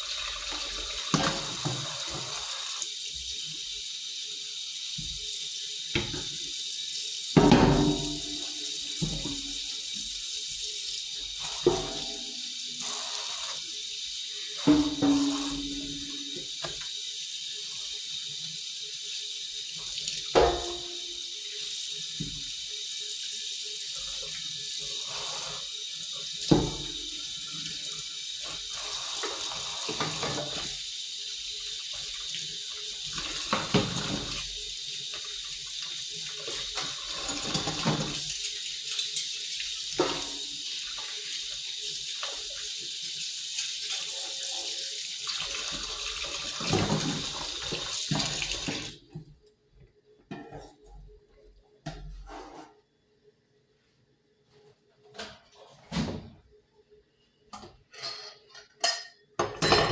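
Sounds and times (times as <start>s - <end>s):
tap running into a sink: 0.4s - 2.6s, 4.9s - 5.3s, 5.9s - 6.5s, 7.4s - 10.1s, 14.6s - 17.0s, 19.9s - 21.1s, 22.1s - 22.5s, 26.4s - 30.8s, 33.0s - 39.2s, 39.9s - 41.3s, 42.1s - 49.0s.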